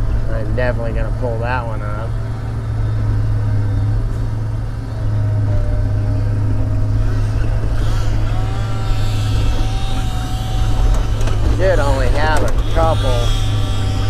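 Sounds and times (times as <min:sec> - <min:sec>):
diesel engine running under load: 0:00.0 - 0:14.0
faint steady whine: 0:00.0 - 0:14.0.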